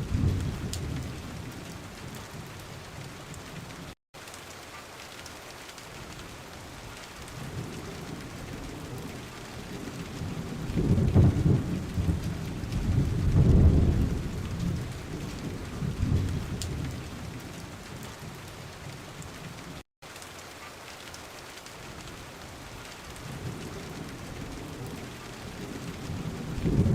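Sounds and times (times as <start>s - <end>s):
rolling thunder: 0.0s - 3.0s, 7.3s - 19.0s, 23.2s - 26.9s
steady rain: 0.0s - 26.9s.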